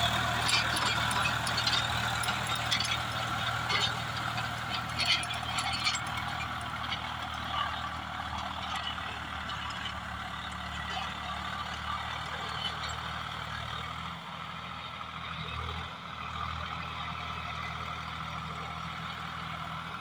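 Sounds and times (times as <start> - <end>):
rotavator rattling clatter: 0.0 - 14.1
tractor diesel engine running: 0.0 - 20.0.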